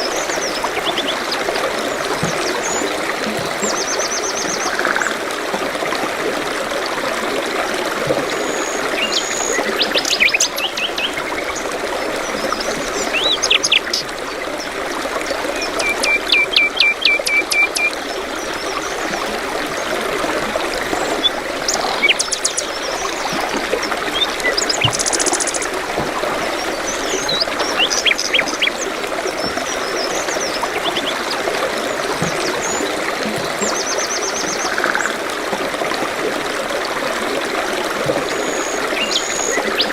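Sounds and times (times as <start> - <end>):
flowing stream: 0.0 - 39.9.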